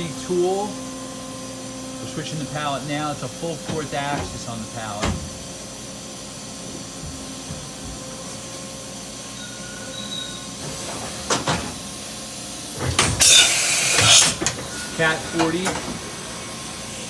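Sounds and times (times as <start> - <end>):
machine hum with whining: 0.0 - 17.0
pallet changer clunks: 2.4 - 5.6, 9.8 - 12.0, 12.7 - 16.7.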